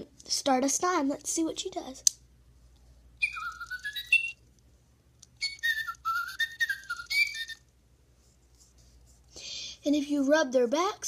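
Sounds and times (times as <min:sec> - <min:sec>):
toy bird electronic tweets: 0:03.2 - 0:04.4, 0:05.4 - 0:07.6.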